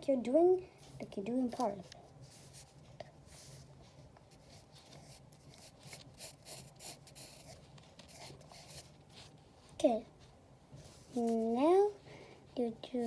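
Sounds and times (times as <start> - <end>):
pencil sketching on paper: 4.4 - 9.4.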